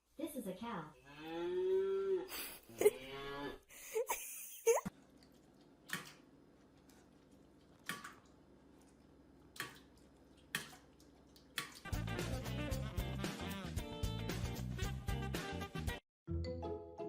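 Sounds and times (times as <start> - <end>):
background music: 11.9 - 17.0.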